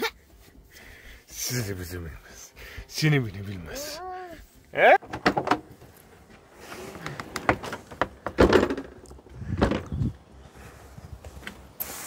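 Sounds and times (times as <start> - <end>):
knocks and thuds: 5.0 - 5.7, 7.4 - 10.1.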